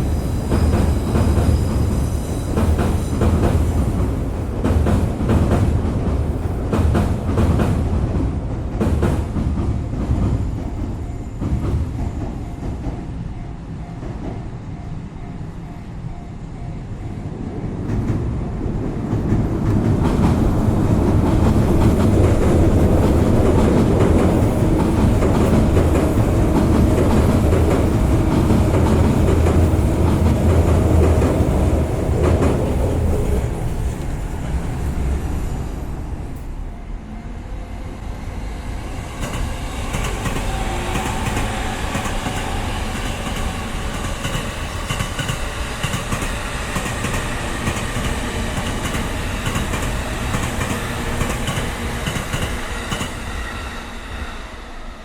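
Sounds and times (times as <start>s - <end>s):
train clattering rumble: 0.0s - 14.8s, 17.1s - 38.1s, 38.8s - 54.2s.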